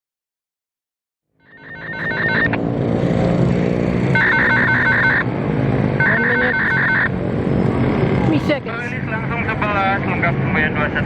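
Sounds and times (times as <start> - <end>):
level crossing warning bell: 1.5 - 2.5, 4.2 - 5.2, 6.0 - 7.1.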